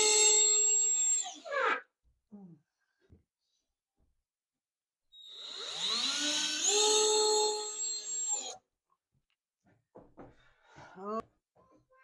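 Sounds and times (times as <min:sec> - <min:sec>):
power drill whirring: 0:00.0 - 0:01.4, 0:05.2 - 0:08.6.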